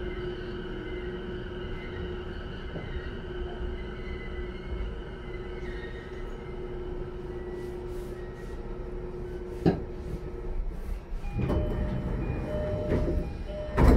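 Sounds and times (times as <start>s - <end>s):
train cabin hum: 6.6s - 13.9s
sliding doors opening: 11.2s - 13.9s.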